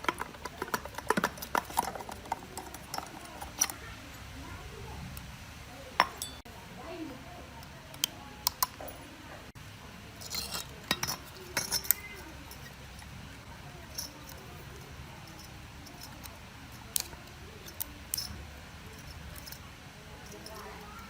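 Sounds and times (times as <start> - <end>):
metal tools clinking: 0.0 - 3.8, 6.0 - 6.5, 10.2 - 21.0.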